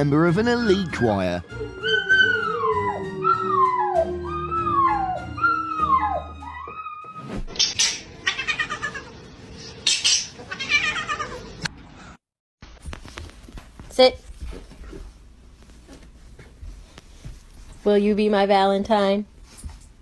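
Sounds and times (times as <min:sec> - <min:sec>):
cat meowing: 0:08.2 - 0:09.1, 0:10.5 - 0:11.4.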